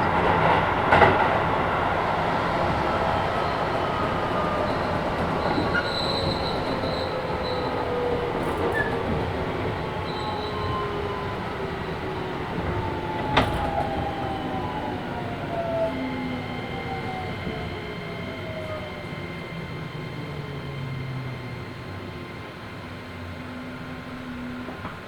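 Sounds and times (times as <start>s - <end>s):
wheel and rail rumble: 0.0s - 25.0s
high wheel squeals: 1.8s - 22.5s
train motor tones falling in pitch: 2.7s - 21.5s.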